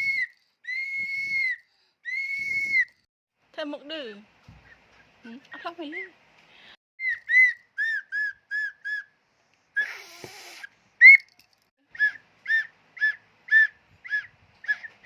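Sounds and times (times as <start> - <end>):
breathy whistle blast: 0.0 - 3.0
toy whistle toots: 0.0 - 3.0, 7.0 - 9.0, 9.8 - 14.9.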